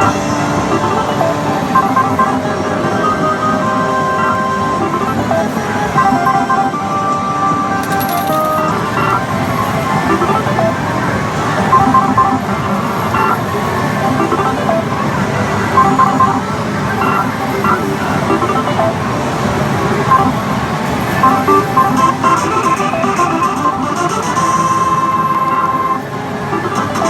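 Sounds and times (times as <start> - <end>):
slot machine electronic jingles: 0.0 - 7.0, 7.6 - 15.0, 15.6 - 19.0, 20.1 - 27.0
short beeps: 15.8 - 18.9, 20.1 - 20.3.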